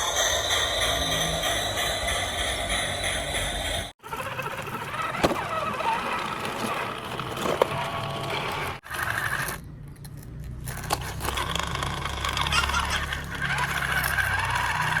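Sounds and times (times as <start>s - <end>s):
toy vehicle motor whirring: 4.0s - 15.0s.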